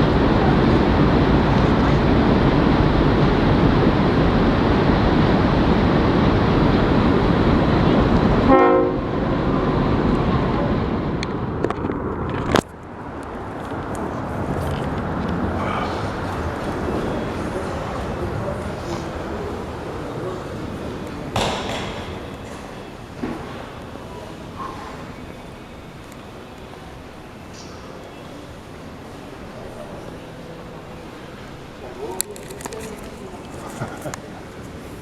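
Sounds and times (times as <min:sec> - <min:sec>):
train rumbling on tracks: 0:00.0 - 0:35.0
train horn toot: 0:08.5 - 0:09.2.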